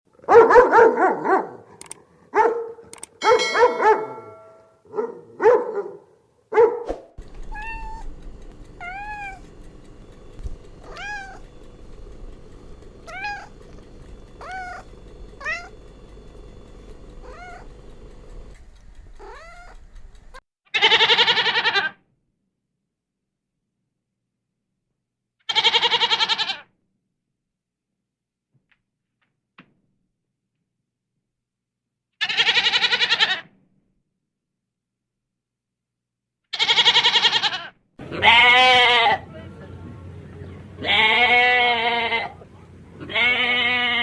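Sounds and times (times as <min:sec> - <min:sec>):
cat meowing: 0:07.4 - 0:08.1, 0:08.8 - 0:09.4, 0:10.8 - 0:11.5, 0:13.1 - 0:13.6, 0:14.4 - 0:15.8, 0:17.2 - 0:17.7, 0:19.2 - 0:19.8, 0:25.5 - 0:26.6, 0:32.2 - 0:33.5, 0:36.6 - 0:39.2, 0:43.1 - 0:44.0
goat bleating: 0:10.8 - 0:11.7, 0:12.6 - 0:15.8, 0:20.7 - 0:22.0, 0:25.5 - 0:26.7, 0:32.2 - 0:33.5, 0:36.5 - 0:39.3, 0:40.8 - 0:44.0
short pitched animal calls: 0:13.0 - 0:13.6, 0:14.4 - 0:15.8.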